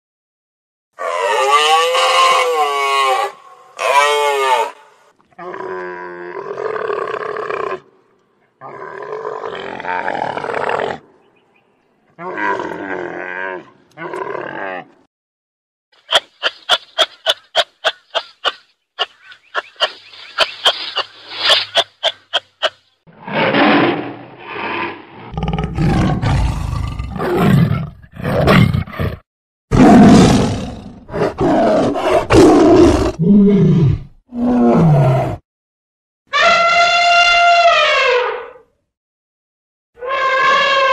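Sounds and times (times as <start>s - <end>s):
tiger roars: 25.2s - 35.4s.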